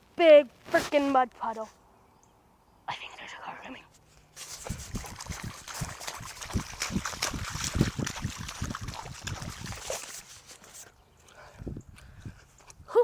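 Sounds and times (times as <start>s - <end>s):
feet splashing in a muddy puddle: 4.4s - 10.8s.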